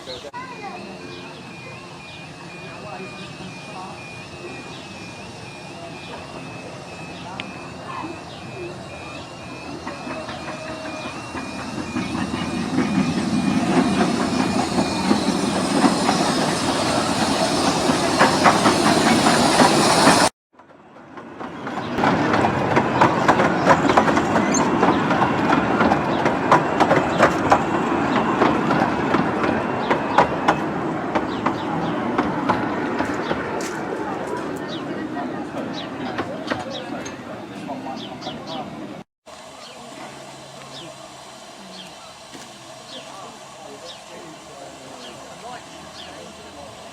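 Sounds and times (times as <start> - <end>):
miniature train running on track: 0.1 - 38.7, 39.3 - 46.9
wheels clicking over rail joints: 18.0 - 34.8.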